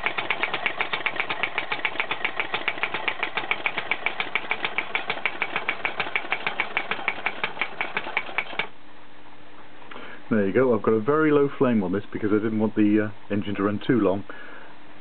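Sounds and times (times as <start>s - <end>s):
model hammer stamper hammering: 0.0s - 8.7s.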